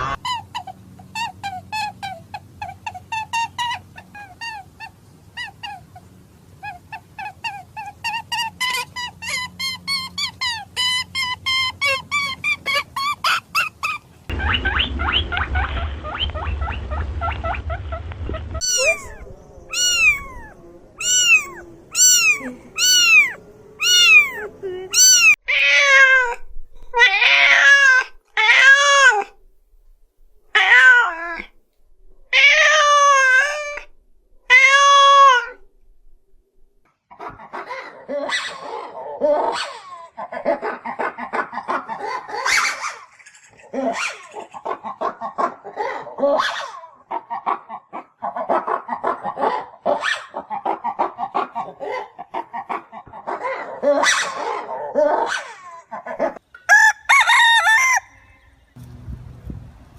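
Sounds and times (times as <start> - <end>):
rough cat calls: 17.7 - 26.4
cat meowing: 18.6 - 26.4
low buzzing: 58.6 - 59.9.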